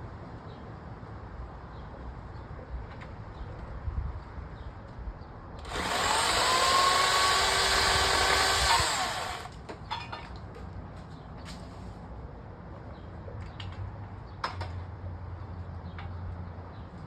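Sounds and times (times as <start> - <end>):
electric chainsaw revving: 5.6 - 9.5.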